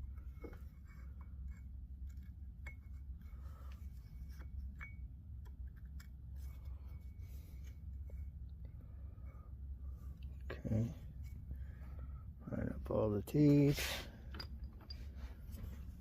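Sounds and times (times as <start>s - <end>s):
light metallic clicks and clinks: 14.2s - 15.3s.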